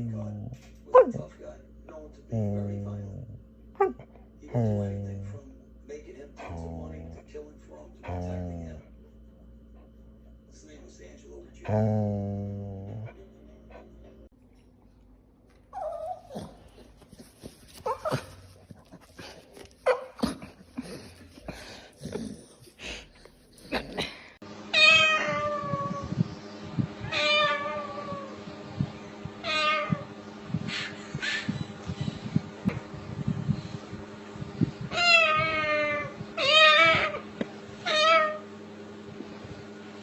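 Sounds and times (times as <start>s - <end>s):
cat meowing: 24.8s - 26.1s, 27.0s - 28.3s, 29.4s - 30.1s, 34.9s - 37.2s, 37.8s - 38.4s.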